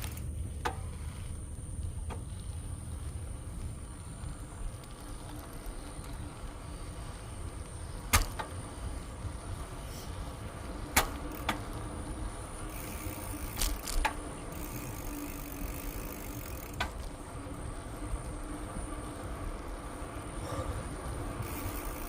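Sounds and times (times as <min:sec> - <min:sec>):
bicycle clicks and rattles: 0:00.0 - 0:22.0
bicycle rolling on trail: 0:00.0 - 0:22.0.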